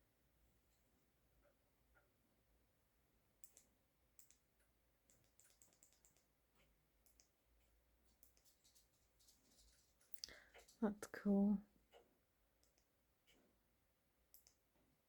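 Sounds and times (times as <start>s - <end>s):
faint clicks: 3.4s - 4.4s, 5.1s - 6.3s, 8.1s - 10.8s, 14.3s - 14.6s.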